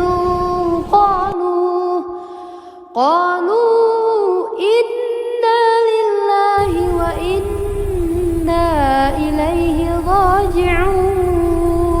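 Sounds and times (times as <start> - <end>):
low steady rumble: 0.0 - 1.4, 6.6 - 12.0
person reciting melodically: 6.6 - 12.0.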